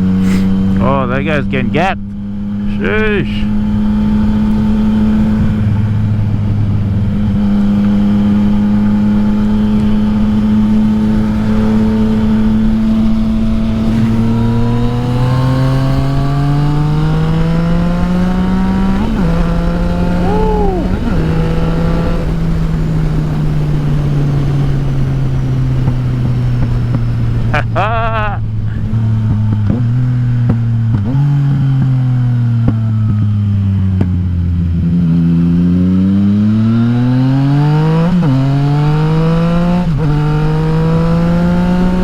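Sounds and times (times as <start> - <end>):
motorcycle engine accelerating: 0.0 - 42.0
wind rumble: 3.4 - 35.5
gear shift: 13.1 - 22.3.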